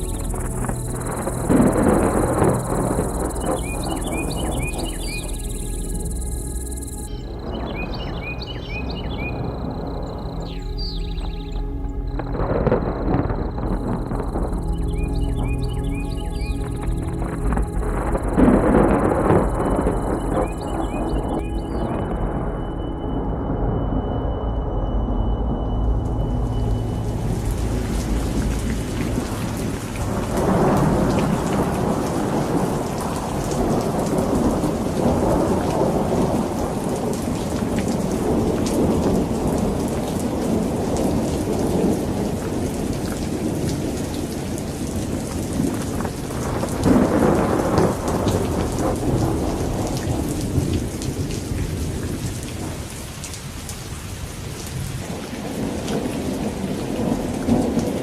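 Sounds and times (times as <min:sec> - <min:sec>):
low rumble: 0:00.0 - 0:36.6.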